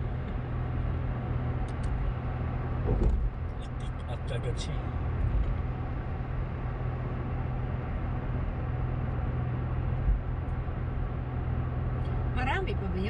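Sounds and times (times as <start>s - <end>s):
car engine hum: 0.0s - 13.0s
road and tyre noise: 0.0s - 13.0s
low bump: 2.8s - 3.6s.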